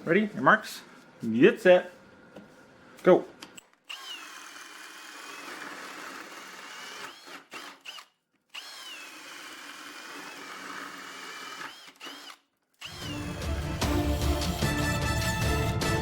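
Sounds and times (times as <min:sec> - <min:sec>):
hammer drill boring holes: 0:03.6 - 0:15.4
background music: 0:12.9 - 0:16.0.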